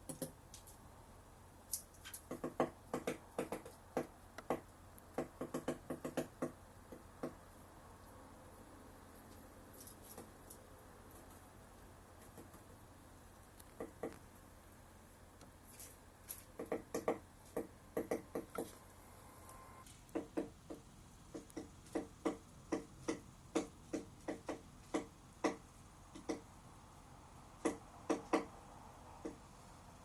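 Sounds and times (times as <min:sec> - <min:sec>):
woodpecker tapping on wood: 0:00.0 - 0:00.4, 0:02.0 - 0:07.4, 0:10.0 - 0:10.4, 0:12.2 - 0:12.8, 0:13.6 - 0:14.3, 0:16.3 - 0:18.8, 0:20.1 - 0:26.5, 0:27.6 - 0:28.5.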